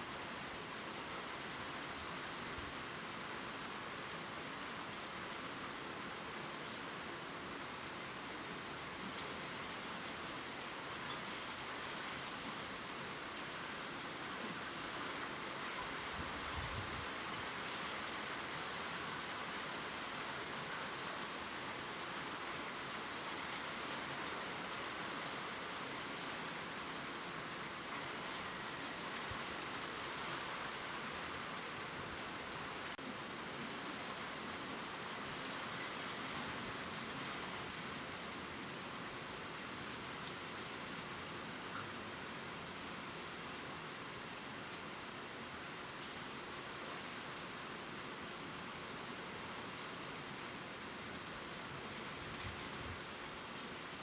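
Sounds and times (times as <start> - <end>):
rain ticking on leaves: 0.0 - 54.0.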